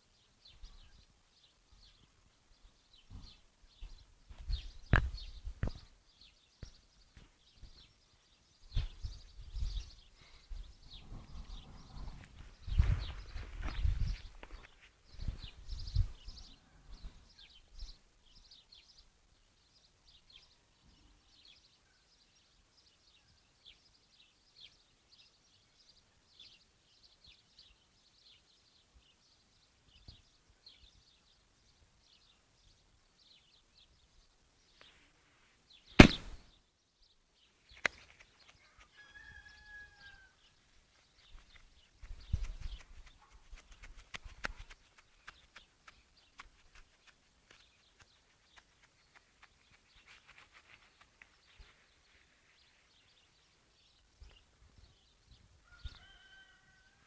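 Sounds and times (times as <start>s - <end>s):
sharp knocks: 36.0s - 36.4s.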